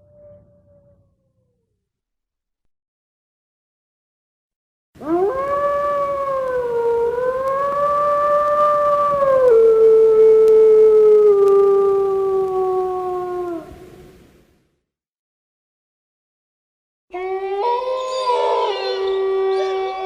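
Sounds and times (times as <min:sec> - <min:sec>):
wolf howling: 0:00.0 - 0:01.7, 0:05.0 - 0:13.8, 0:17.1 - 0:20.0.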